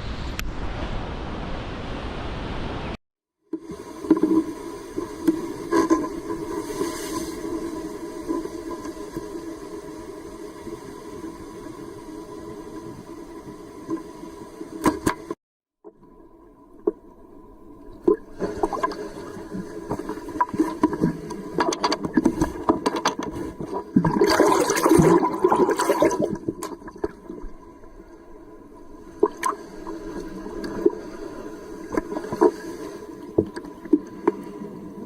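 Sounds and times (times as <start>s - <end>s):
ocean water sloshing: 17.9s - 35.0s
sharp knocks and bubbly clicks: 19.9s - 27.2s.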